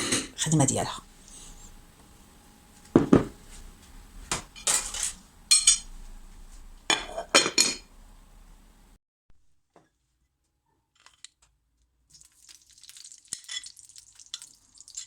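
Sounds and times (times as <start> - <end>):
dishes and utensils clinking: 0.0 - 0.9, 4.4 - 5.9, 6.9 - 7.9.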